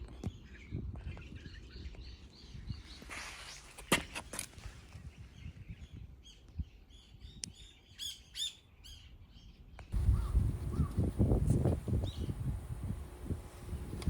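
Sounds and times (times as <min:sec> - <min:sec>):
small birds chirping: 0:05.0 - 0:14.0.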